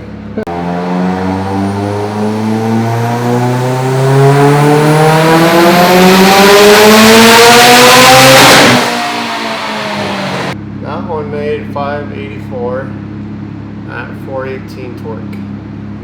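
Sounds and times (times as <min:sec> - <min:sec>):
turbocharged engine revving: 0:00.4 - 0:10.6.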